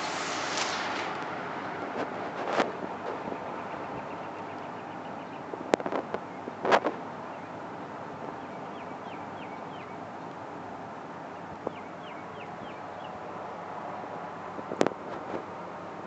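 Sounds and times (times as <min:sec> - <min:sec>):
steady outdoor hiss: 0:00.0 - 0:16.0
bird chirping: 0:08.4 - 0:10.0, 0:11.7 - 0:13.2.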